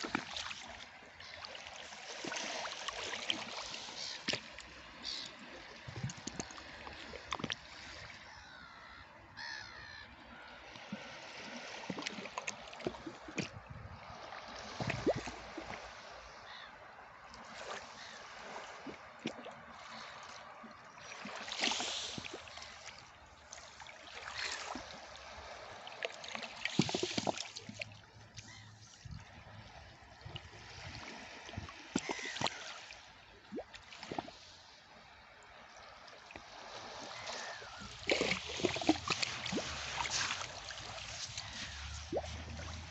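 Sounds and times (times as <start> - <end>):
sea water splashing on shore: 0.0 - 8.2, 10.7 - 16.7, 17.4 - 34.8, 35.9 - 42.9.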